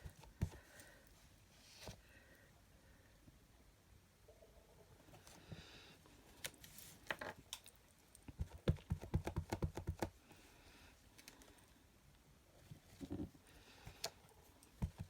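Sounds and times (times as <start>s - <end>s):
rubber stamp tapping ink pad: 8.4s - 10.1s.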